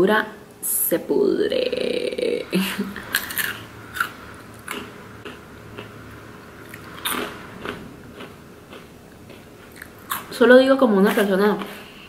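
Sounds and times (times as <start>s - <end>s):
person chewing crunchy snacks: 3.0s - 5.9s, 6.6s - 10.3s.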